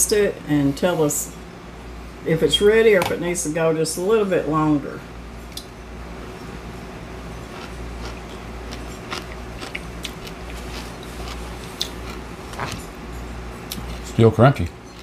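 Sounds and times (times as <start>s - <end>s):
steady low hum: 0.0s - 15.0s
man chewing crunchy food: 7.2s - 14.2s.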